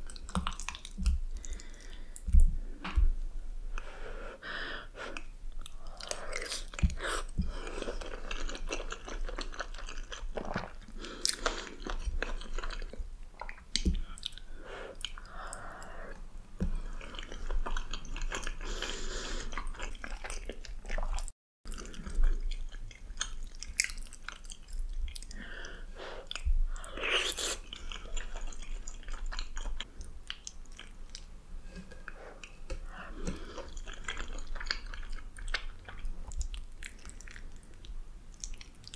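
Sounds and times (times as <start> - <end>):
person chewing soft food: 0.0 - 3.0, 4.9 - 38.9.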